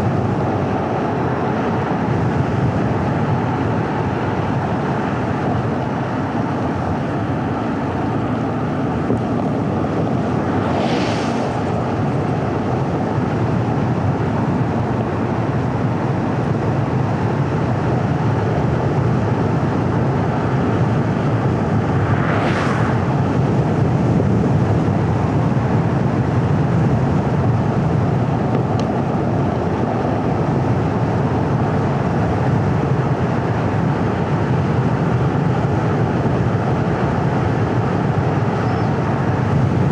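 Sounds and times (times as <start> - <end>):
road and tyre noise: 0.0 - 39.9
hissing swooshes: 9.5 - 12.5, 21.5 - 23.8.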